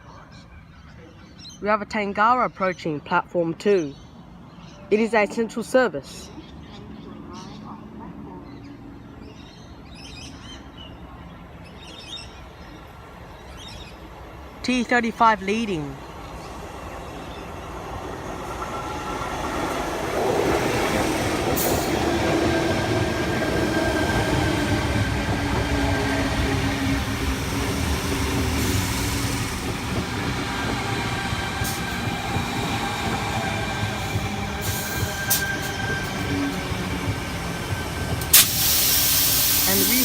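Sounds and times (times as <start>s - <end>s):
electric train running: 16.5s - 40.0s
air hisses: 38.2s - 40.0s.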